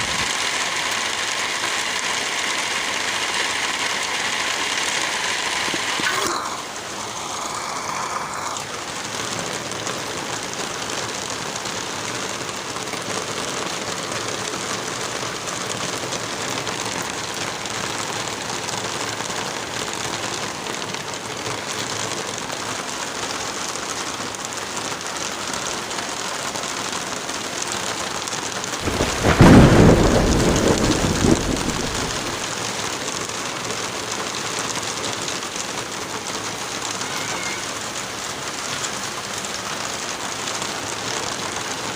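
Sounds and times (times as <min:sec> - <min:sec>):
heavy rain: 0:00.0 - 0:41.9
thunder roll: 0:28.8 - 0:32.5.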